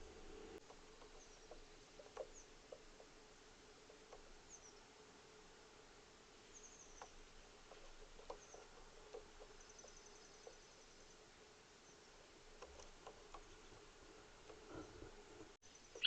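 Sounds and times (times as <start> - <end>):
distant bird chirps: 0.6 - 3.1, 6.5 - 12.2, 14.5 - 16.0.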